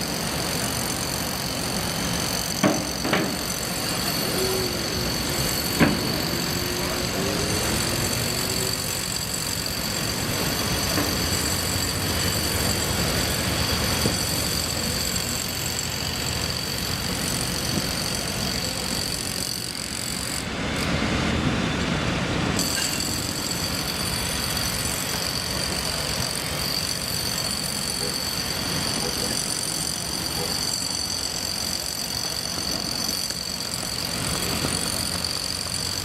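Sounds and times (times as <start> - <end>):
high steady tones: 0.2 - 18.6.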